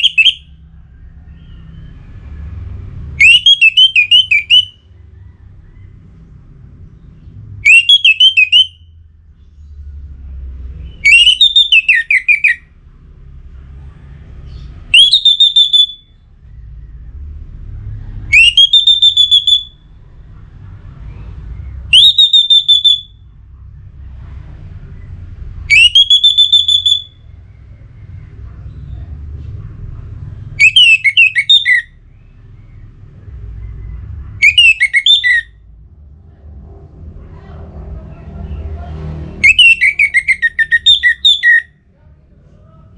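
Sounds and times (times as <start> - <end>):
thrush singing whistled phrases: 0.0 - 0.6, 3.1 - 5.0, 7.6 - 9.0, 10.8 - 12.7, 14.9 - 16.2, 18.3 - 19.9, 21.6 - 23.2, 25.6 - 27.4, 30.6 - 32.8, 34.4 - 35.6, 39.4 - 41.8.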